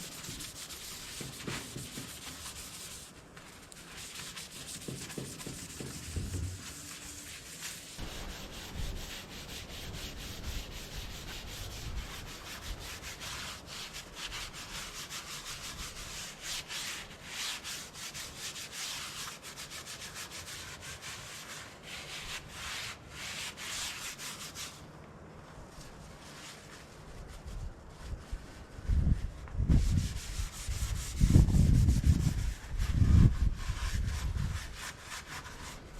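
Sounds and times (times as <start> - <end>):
hand scrubbing metal: 0.0 - 18.4.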